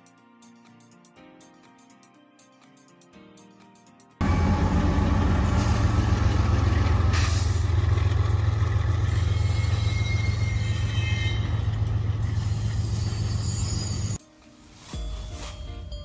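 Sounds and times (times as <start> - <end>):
low rumble with rushing hiss: 4.2 - 9.8.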